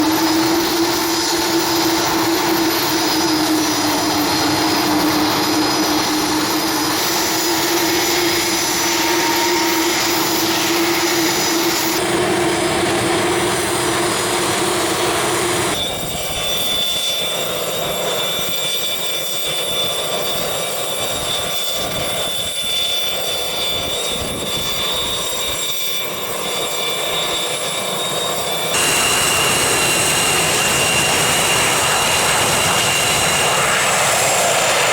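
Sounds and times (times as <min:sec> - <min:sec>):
jet engines running: 0:00.0 - 0:34.9
high steady whine: 0:28.7 - 0:34.9.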